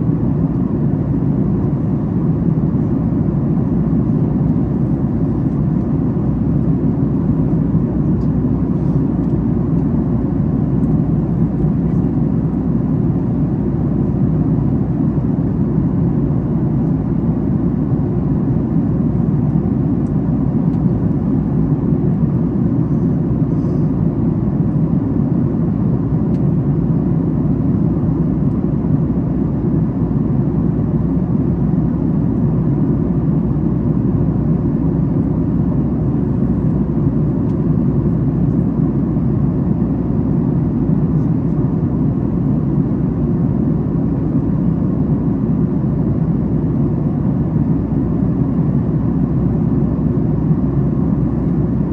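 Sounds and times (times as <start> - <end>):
airliner cabin noise: 0.0 - 51.9.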